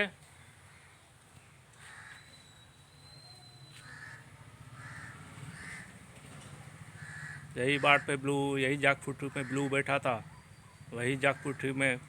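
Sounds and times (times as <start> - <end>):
crows cawing: 1.8 - 2.3, 3.8 - 6.0, 6.7 - 8.3, 9.1 - 10.2, 11.2 - 12.0.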